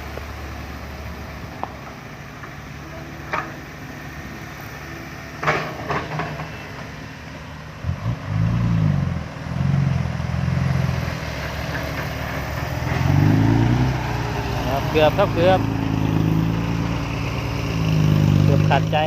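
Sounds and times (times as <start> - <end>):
dump truck diesel engine revving: 6.2 - 19.0.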